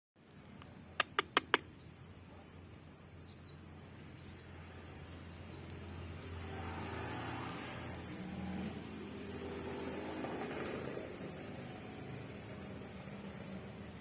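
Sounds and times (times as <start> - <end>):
sharp clicks: 0.2 - 1.9
songbird chirping: 0.2 - 14.0.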